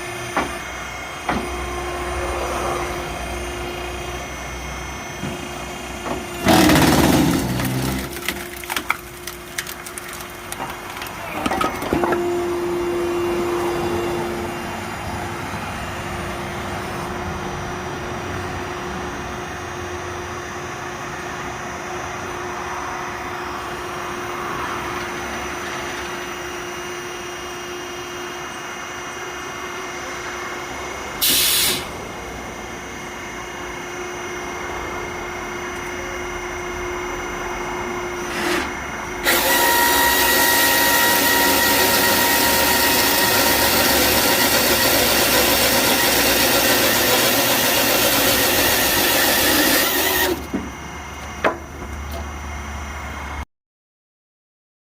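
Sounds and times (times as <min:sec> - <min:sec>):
high whine under load: 0:00.0 - 0:09.6, 0:10.2 - 0:53.4
firewood machine engine running: 0:00.0 - 0:16.8, 0:38.0 - 0:53.4.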